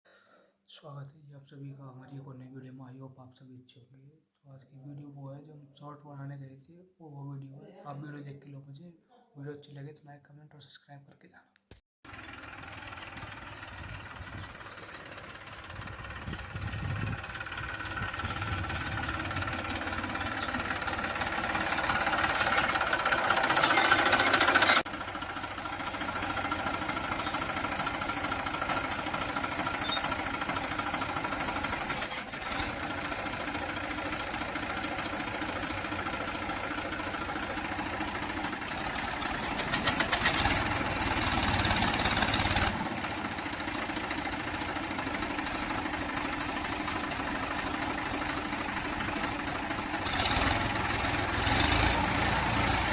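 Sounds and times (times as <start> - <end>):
tractor diesel engine running: 12.1 - 52.9.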